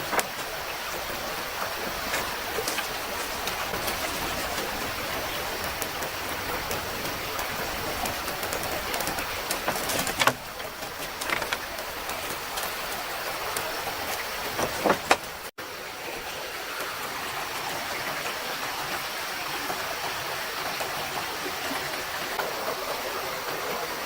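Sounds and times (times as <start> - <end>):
stream rushing: 0.0 - 24.0
sharp clicks and knocks: 6.7 - 12.8, 14.1 - 15.4.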